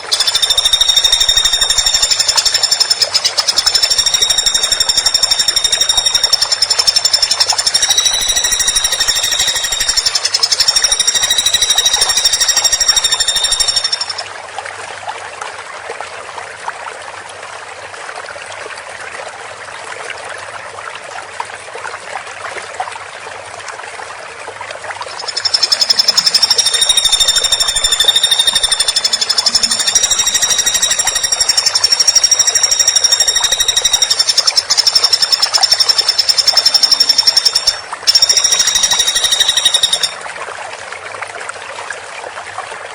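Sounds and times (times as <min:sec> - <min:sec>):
woodpecker rattling trill: 0:00.0 - 0:14.2, 0:25.1 - 0:40.2.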